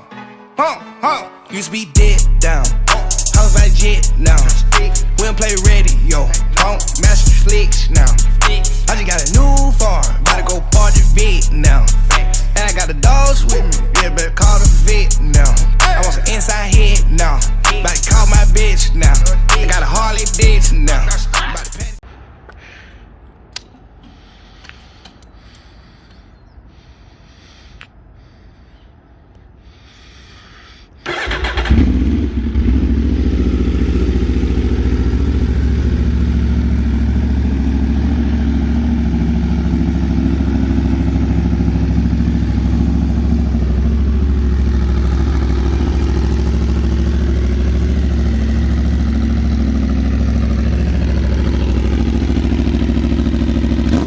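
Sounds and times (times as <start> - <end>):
motorcycle engine starting and idling: 31.0 - 54.0.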